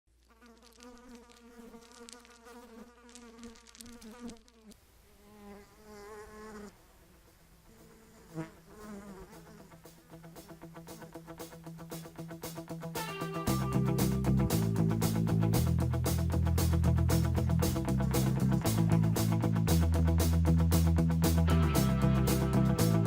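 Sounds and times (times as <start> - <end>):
honeybees buzzing: 0.2 - 11.7.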